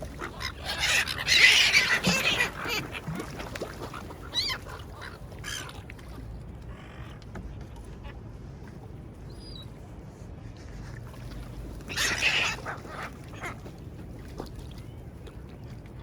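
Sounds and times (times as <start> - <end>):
seagull calls: 0.0 - 5.9, 11.9 - 13.7.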